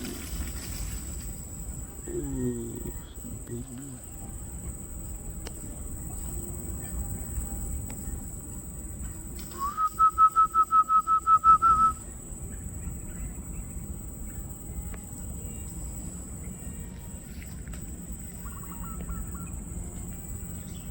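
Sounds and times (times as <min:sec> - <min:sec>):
high-pitched insect buzz: 0:00.0 - 0:20.9
bird whistling rapid notes: 0:09.6 - 0:12.0, 0:18.4 - 0:19.6.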